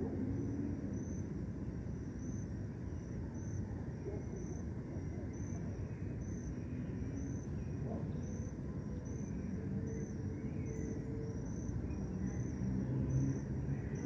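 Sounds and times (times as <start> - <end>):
cricket chirping: 0.2 - 14.0
distant city traffic rumble: 7.8 - 14.0.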